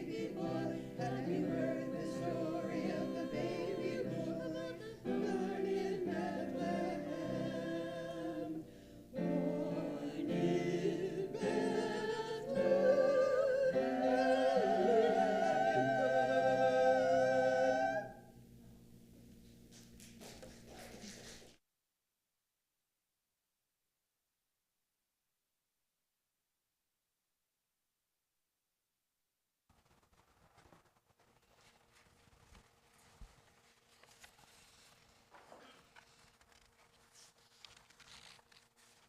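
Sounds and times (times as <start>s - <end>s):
choir singing: 0.0s - 18.2s.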